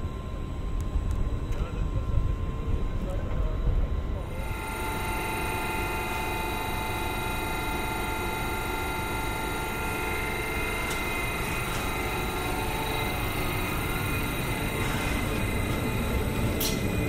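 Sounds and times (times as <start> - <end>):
electric drive whining: 4.2 - 17.0.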